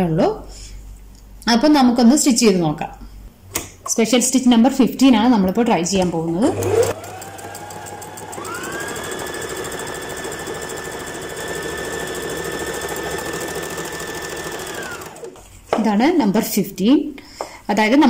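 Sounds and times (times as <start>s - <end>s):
electric sewing machine running: 6.0s - 15.5s.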